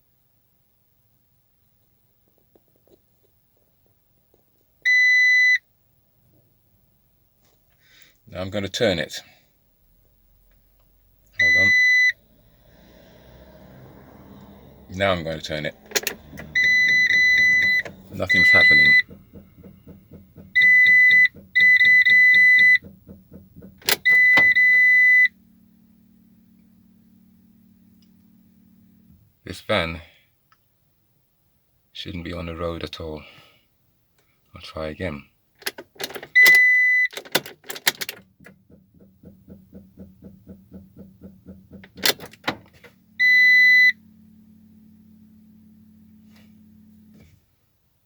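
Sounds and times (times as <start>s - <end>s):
engine cranking by starter: 11.2s - 29.3s, 35.6s - 47.3s
faint hum: 11.2s - 30.4s
high electronic warning beep: 11.4s - 12.2s, 16.0s - 19.7s, 20.5s - 22.9s, 23.9s - 25.4s, 43.2s - 44.0s
dashboard warning beeper: 11.4s - 29.2s, 36.0s - 47.2s
soft ticking: 12.3s - 24.8s
loud clunks: 12.6s - 25.0s
sharp clicks: 15.7s - 24.8s.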